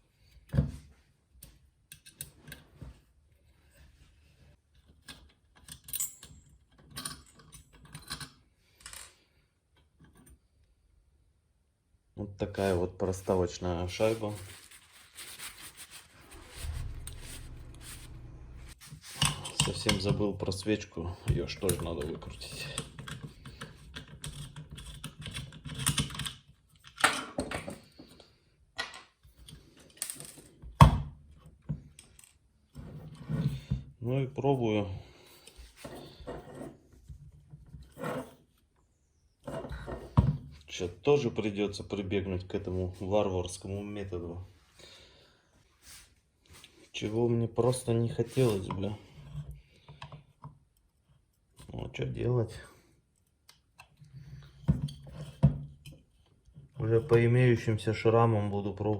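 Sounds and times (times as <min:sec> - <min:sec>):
low hum: 0:16.0 - 0:18.8.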